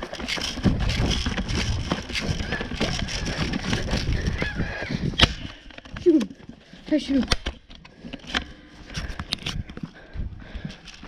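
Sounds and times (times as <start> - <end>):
footsteps in dry brush and leaves: 0.0 - 5.2.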